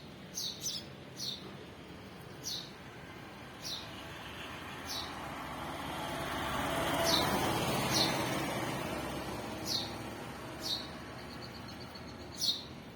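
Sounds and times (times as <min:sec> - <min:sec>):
small bird chirping: 0:00.3 - 0:01.5, 0:02.3 - 0:02.8, 0:03.6 - 0:03.9, 0:04.8 - 0:05.2, 0:09.6 - 0:10.0, 0:10.6 - 0:12.9.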